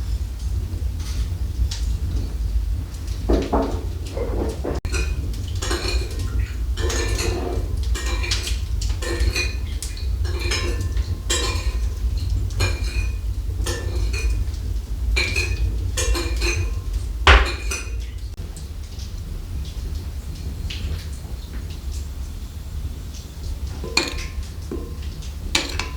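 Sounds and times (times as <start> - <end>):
clinks and scrapes: 3.3 - 9.6, 23.8 - 25.9
loud knock: 17.3 - 17.8.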